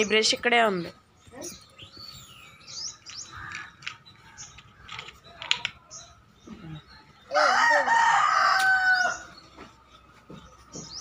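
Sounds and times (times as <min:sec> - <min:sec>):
small birds chirping: 0:00.0 - 0:11.0
rooster crowing: 0:07.3 - 0:09.3.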